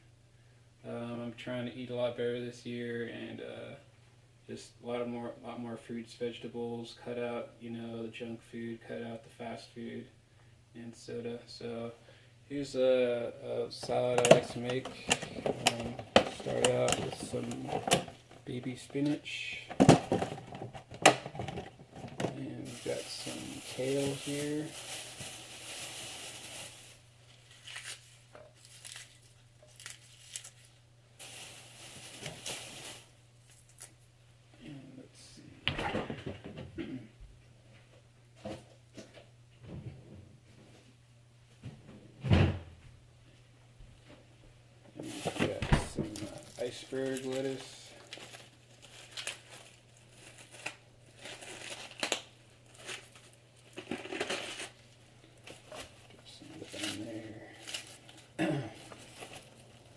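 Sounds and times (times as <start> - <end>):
kale crinkling and tearing: 22.6 - 34.0, 45.1 - 59.9
lettuce leaves being torn: 27.5 - 30.7.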